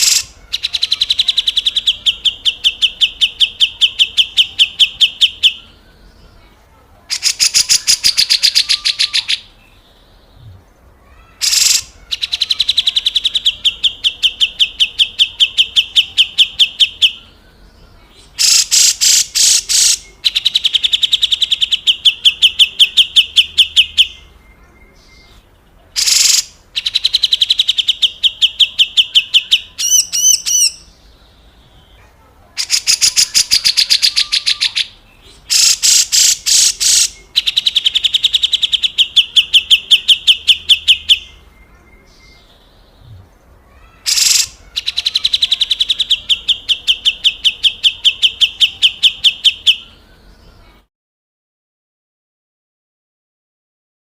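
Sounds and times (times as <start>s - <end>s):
bird harsh rattling call: 0.0s - 2.8s, 11.1s - 12.7s, 18.4s - 21.3s, 26.0s - 27.7s, 32.6s - 39.2s, 43.8s - 45.9s.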